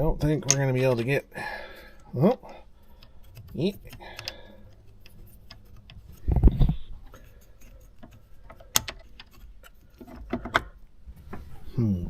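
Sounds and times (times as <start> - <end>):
steering wheel parts clicking: 2.9 - 10.8.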